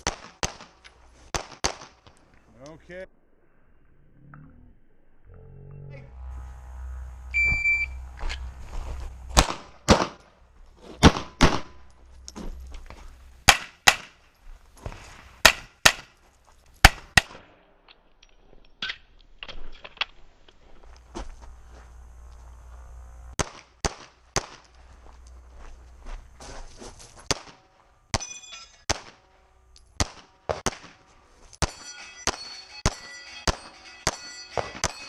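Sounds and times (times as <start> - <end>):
pistol shots in pairs: 0.0 - 2.0, 9.4 - 10.2, 11.0 - 11.8, 13.4 - 14.2, 15.4 - 16.1, 16.8 - 17.6, 23.4 - 24.7, 27.3 - 29.2, 30.0 - 31.0, 31.6 - 35.0
shot timer beep: 7.3 - 8.1.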